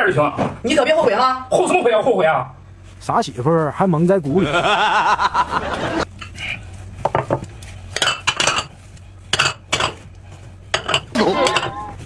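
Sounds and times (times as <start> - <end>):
cutlery clinking and scraping dishes: 6.2 - 10.1, 10.7 - 11.9.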